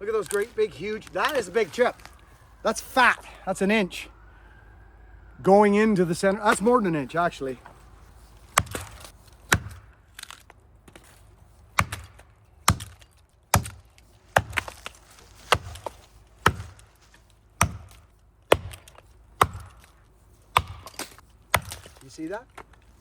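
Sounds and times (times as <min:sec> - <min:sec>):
axe chopping into tree trunk: 0:08.5 - 0:11.1, 0:11.7 - 0:17.0, 0:17.6 - 0:22.0.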